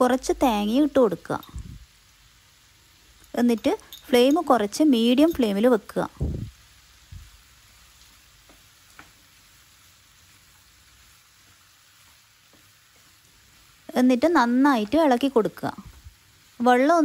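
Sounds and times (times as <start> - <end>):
faint sizzling in a pan: 0.0 - 17.0
wooden spatula tapping and scraping: 12.0 - 13.1.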